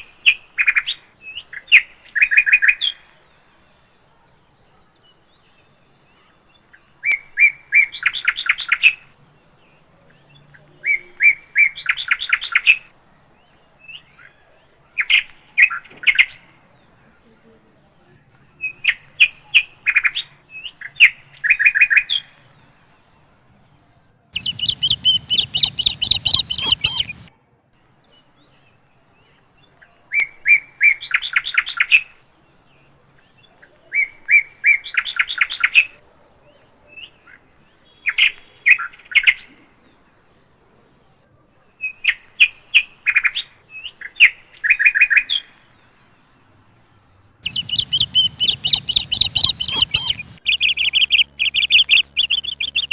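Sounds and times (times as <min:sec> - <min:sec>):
birds chirping: 0:24.4 - 0:27.3, 0:47.4 - 0:52.9.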